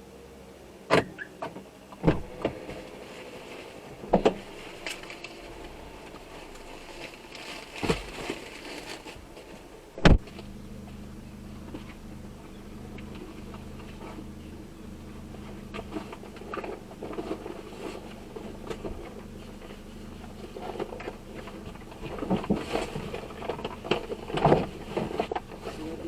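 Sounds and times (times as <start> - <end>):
steady low hum: 1.6 - 26.0
sharp knocks and thumps: 2.0 - 2.7, 10.0 - 11.0.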